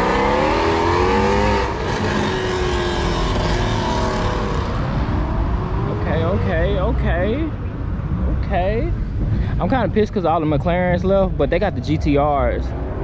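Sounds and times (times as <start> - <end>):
car engine revving: 0.0 - 9.3.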